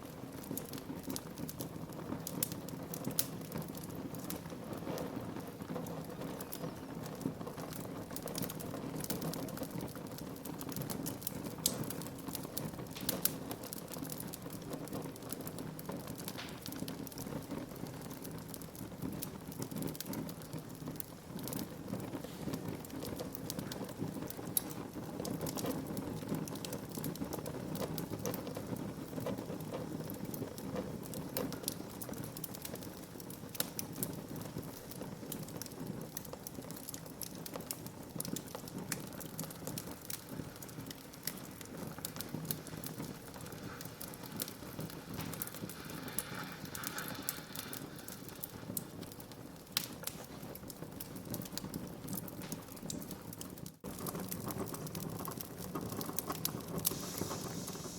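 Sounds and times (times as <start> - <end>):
burning wood crackling: 0.0 - 57.9
fire hissing and rumbling: 0.0 - 57.9.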